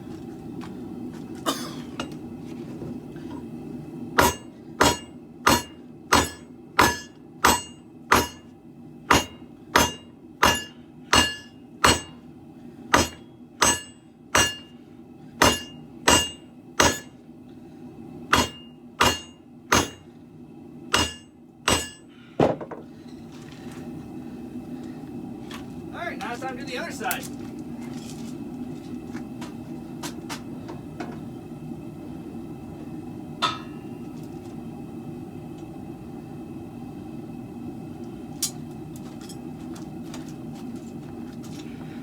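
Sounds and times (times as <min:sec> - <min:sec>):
steady low hum: 0:00.0 - 0:42.0
hammer striking steel on anvil: 0:04.2 - 0:08.5, 0:09.1 - 0:12.2, 0:12.9 - 0:14.8, 0:15.4 - 0:17.2, 0:18.3 - 0:20.0, 0:20.9 - 0:22.1, 0:33.4 - 0:33.9.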